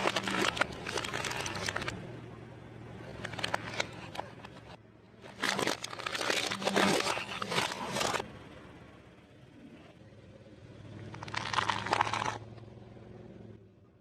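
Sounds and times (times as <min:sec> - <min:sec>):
tyre crushing crunchy food: 0:00.0 - 0:02.0, 0:05.2 - 0:08.2, 0:11.1 - 0:12.4.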